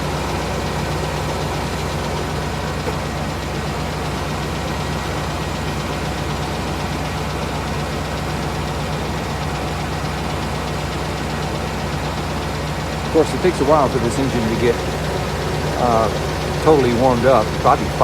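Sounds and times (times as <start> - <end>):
faint engine ticking: 0.0 - 18.0
van engine idling: 0.0 - 18.0.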